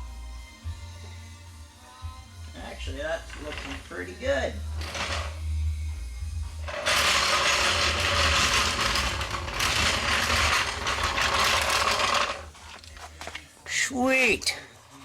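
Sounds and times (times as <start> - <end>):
ratchet wrench rattling: 3.2 - 5.4, 6.7 - 13.0.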